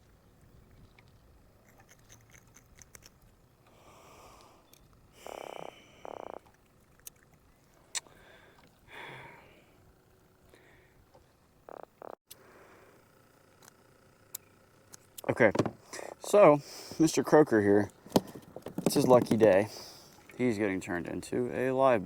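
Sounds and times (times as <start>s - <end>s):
fish croaking: 5.2s - 9.1s, 11.6s - 12.2s.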